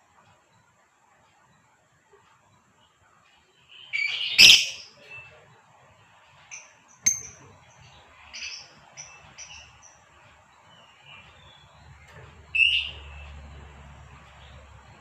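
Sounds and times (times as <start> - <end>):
lovebird chattering and chirping: 3.8 - 5.0, 6.5 - 10.1, 12.6 - 13.4.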